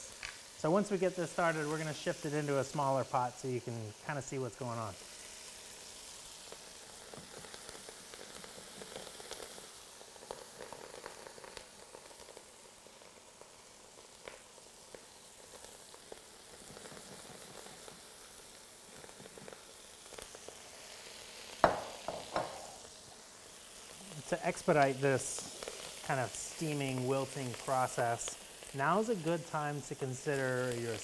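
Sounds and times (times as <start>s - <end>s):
food sizzling in a pot: 0.0s - 31.0s
small pops and ticks: 0.1s - 0.5s, 10.2s - 12.5s, 14.1s - 18.1s.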